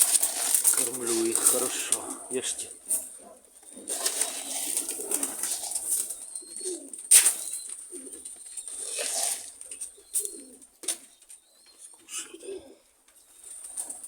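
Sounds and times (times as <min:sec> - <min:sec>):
rustling bursts: 0:00.0 - 0:03.1, 0:03.8 - 0:06.5
pigeons cooing: 0:00.0 - 0:14.0.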